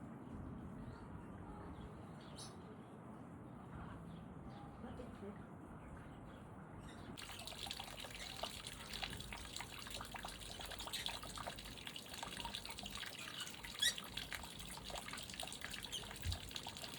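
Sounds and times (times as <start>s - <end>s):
crackling drips: 7.2s - 16.9s
water trickling and splashing: 7.2s - 16.9s.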